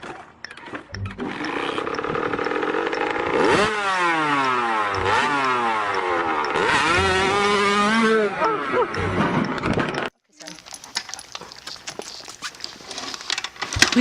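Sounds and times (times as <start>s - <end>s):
dirt bike engine revving: 0.9s - 10.1s.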